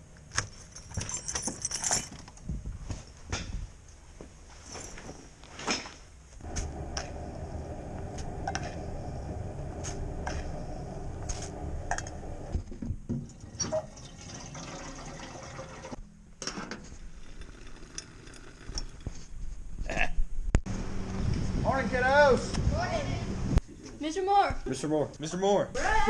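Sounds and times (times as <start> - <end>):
clinks and knocks of objects: 0.3 - 2.5
water pouring into container: 13.3 - 16.0.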